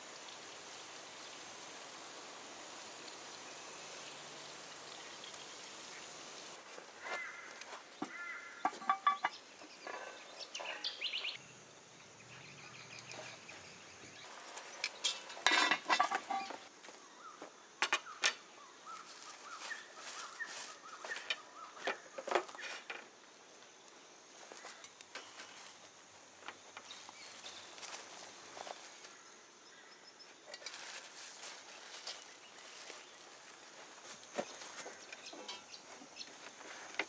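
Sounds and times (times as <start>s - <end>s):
birds calling: 5.0s - 15.4s, 16.0s - 23.0s.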